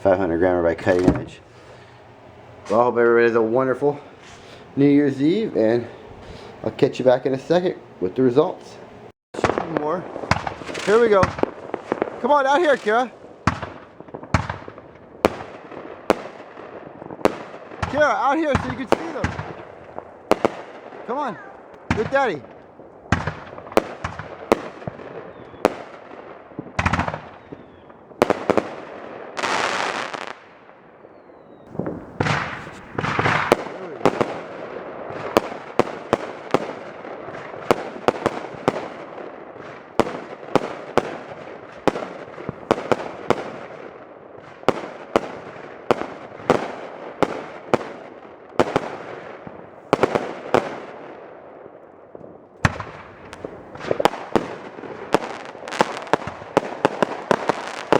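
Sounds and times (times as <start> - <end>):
firework bangs: 0.0 - 51.5, 52.1 - 57.9
firework launch thumps: 0.8 - 2.8, 10.3 - 12.1, 31.7 - 34.3
firework hissing: 0.8 - 7.0, 31.7 - 34.5.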